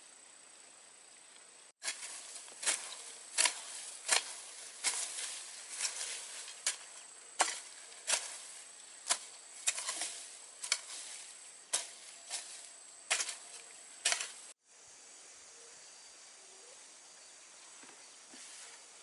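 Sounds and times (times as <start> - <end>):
faint hiss: 0.0 - 19.0
short gritty crunch: 1.8 - 14.6.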